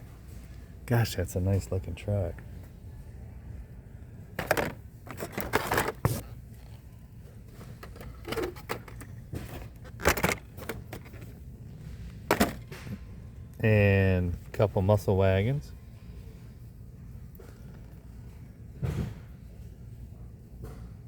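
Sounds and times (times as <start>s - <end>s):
low background hum: 0.0s - 21.0s
plastic packs clacking and rattling: 4.4s - 6.2s, 7.6s - 11.4s, 12.3s - 12.9s.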